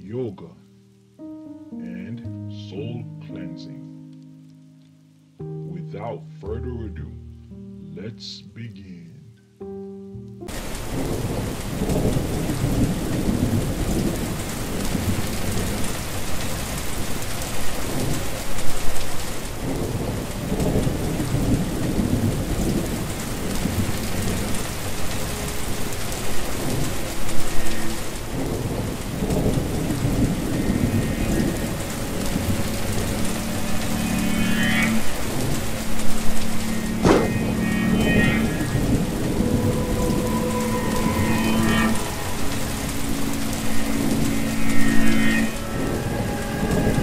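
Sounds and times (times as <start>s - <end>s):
heavy rain on water: 0.6s - 1.5s, 10.5s - 47.0s
rolling thunder: 10.5s - 47.0s.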